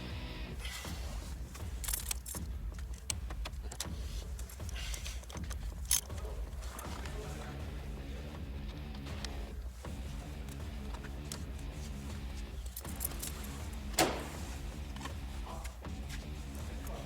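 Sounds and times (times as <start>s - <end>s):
car engine humming: 0.0s - 17.0s
light metallic jingling: 1.5s - 3.2s, 12.5s - 14.2s.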